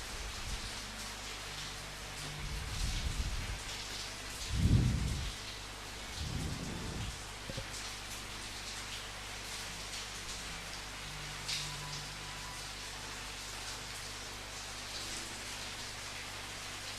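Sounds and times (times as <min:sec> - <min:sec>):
rain falling: 0:00.0 - 0:16.9
short low rumbles: 0:06.2 - 0:07.6.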